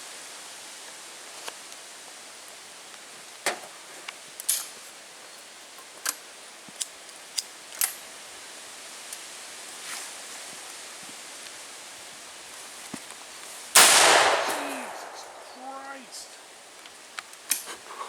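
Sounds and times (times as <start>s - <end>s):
shotgun blast with echo: 13.8s - 16.4s.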